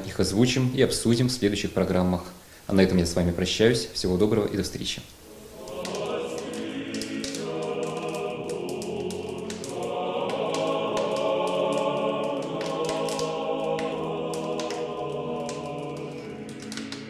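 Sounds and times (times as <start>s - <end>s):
choir singing sustained chords: 5.2s - 17.0s.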